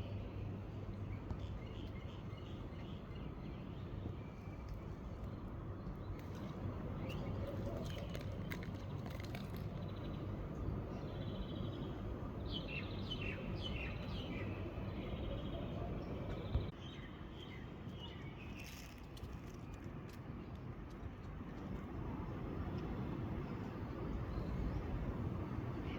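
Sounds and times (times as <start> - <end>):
songbirds chirping and singing: 9.5 - 18.8.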